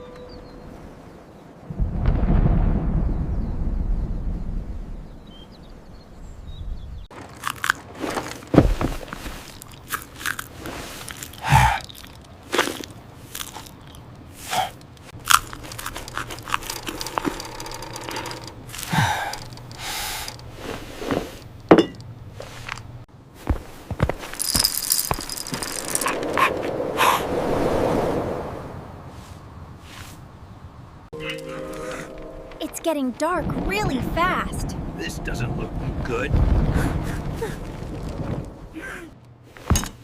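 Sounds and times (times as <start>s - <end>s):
crunching and knocking noises: 7.1s - 26.5s
low rumble: 33.4s - 38.8s.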